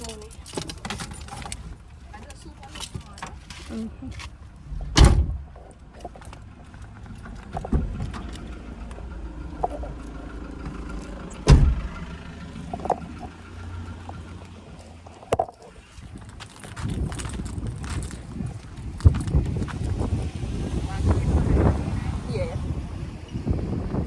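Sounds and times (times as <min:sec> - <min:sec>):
car engine idling: 0:00.0 - 0:24.0
loud thumps: 0:11.5 - 0:12.1.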